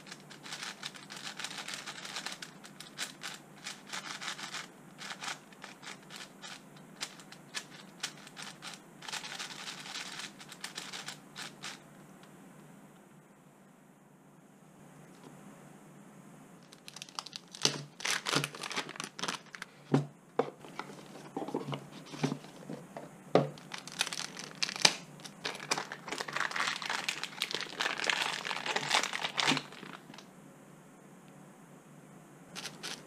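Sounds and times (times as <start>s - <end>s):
packaging crinkling and tearing: 0.0s - 11.8s, 16.7s - 19.8s, 23.6s - 30.2s.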